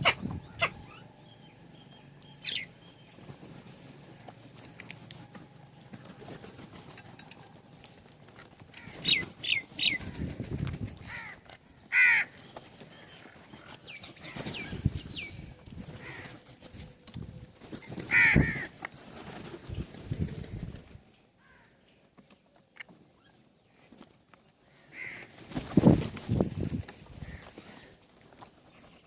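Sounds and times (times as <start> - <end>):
louder fuller bird calls: 0.0 - 4.3
birds chirping: 0.0 - 18.7.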